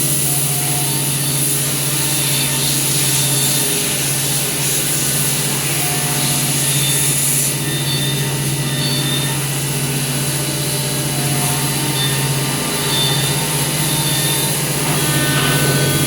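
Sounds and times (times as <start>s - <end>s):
wood router machine humming: 14.7s - 16.0s.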